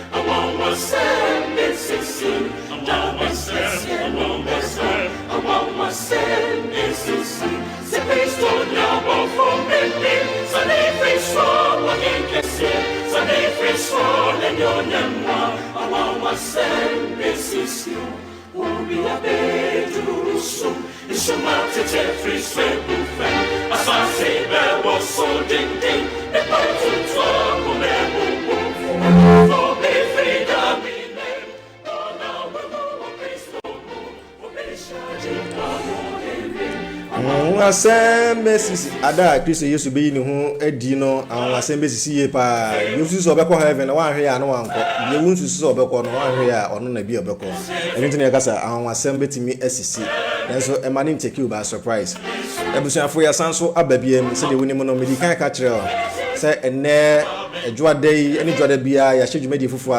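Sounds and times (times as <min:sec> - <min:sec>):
gospel choir singing: 0:00.0 - 0:59.9
sustained bass: 0:28.8 - 0:29.7
loud low note: 0:28.9 - 0:29.6.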